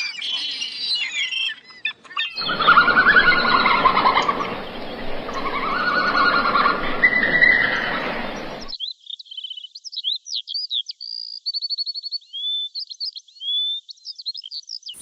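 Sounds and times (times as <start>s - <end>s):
small bird chirping: 0.8s - 15.0s
long animal calls: 2.4s - 8.7s.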